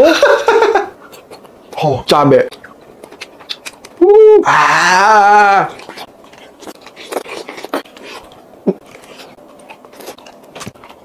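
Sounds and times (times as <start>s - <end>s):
person chewing food: 1.0s - 1.8s, 2.5s - 4.0s, 4.7s - 11.0s
wet mouth smacks and clicks: 2.5s - 4.0s.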